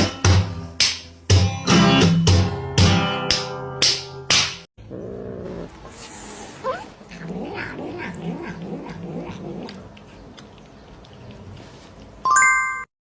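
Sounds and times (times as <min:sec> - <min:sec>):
cat yowling: 0:06.6 - 0:09.8.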